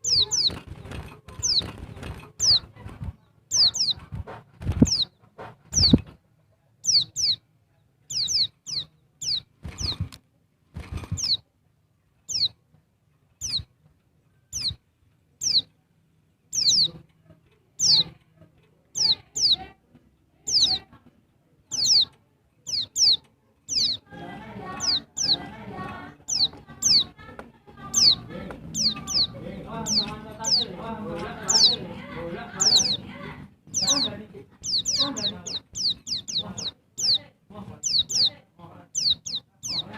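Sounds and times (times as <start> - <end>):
bird high chirps: 0.0 - 4.1, 4.7 - 6.1, 6.8 - 10.1, 11.0 - 11.5, 12.2 - 12.6, 13.4 - 13.7, 14.3 - 14.8, 15.4 - 15.8, 16.5 - 17.0, 17.8 - 18.2, 18.9 - 19.7, 20.4 - 20.9, 21.7 - 39.9.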